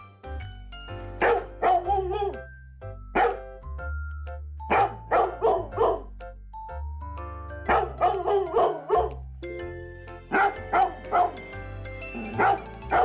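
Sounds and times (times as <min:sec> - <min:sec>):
background music: 0:00.0 - 0:13.0
dog barking: 0:01.2 - 0:02.4, 0:03.2 - 0:03.4, 0:04.7 - 0:06.1, 0:07.7 - 0:09.2, 0:10.3 - 0:11.4, 0:12.2 - 0:13.0.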